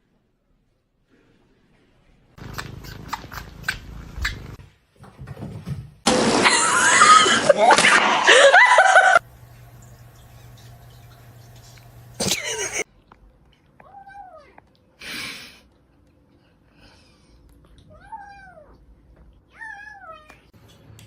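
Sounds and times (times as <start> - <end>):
steady hum: 9.0 - 12.8.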